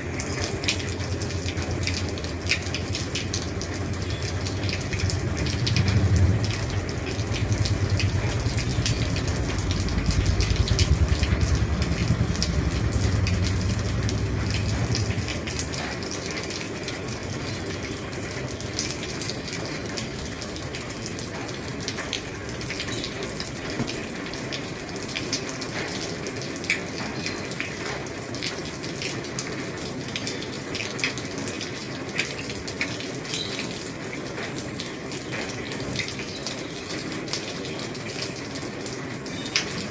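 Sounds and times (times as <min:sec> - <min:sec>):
heavy rain on a roof: 0:00.0 - 0:39.9
low rumble: 0:02.9 - 0:15.9.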